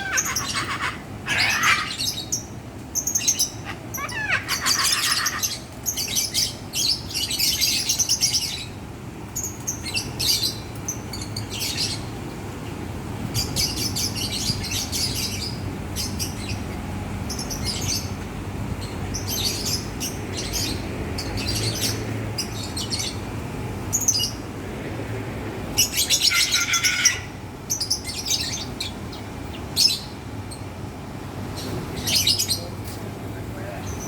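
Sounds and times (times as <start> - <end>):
lovebirds chirping: 0.0 - 8.8.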